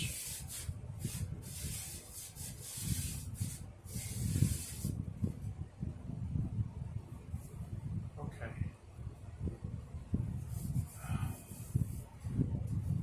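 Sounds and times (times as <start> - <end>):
rag wiping plastic: 0.0 - 5.0.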